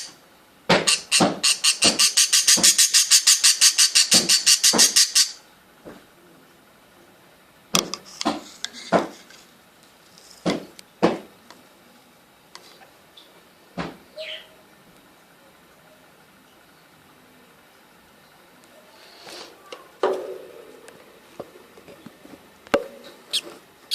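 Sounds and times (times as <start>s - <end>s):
budgie chirping: 0.9s - 5.4s, 23.3s - 23.9s.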